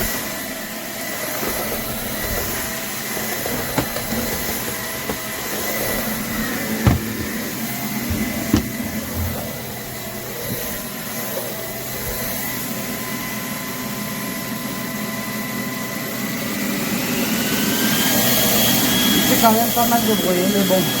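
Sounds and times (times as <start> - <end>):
short knocks: 3.6 - 9.7.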